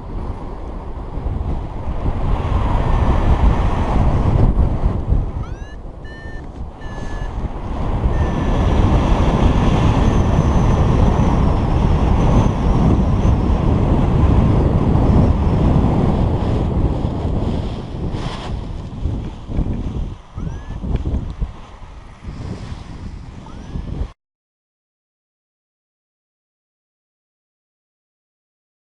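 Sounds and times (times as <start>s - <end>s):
wind buffeting microphone: 0.0s - 24.2s
variometer beeping: 5.4s - 7.5s, 8.1s - 8.9s, 9.9s - 10.8s, 20.4s - 20.9s, 23.4s - 23.8s.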